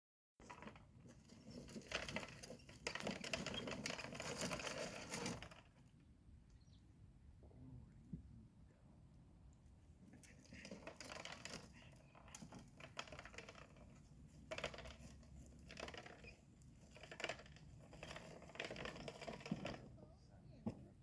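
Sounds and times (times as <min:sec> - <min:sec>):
toy tractor rattling across floor: 0:00.4 - 0:05.9, 0:10.3 - 0:20.0.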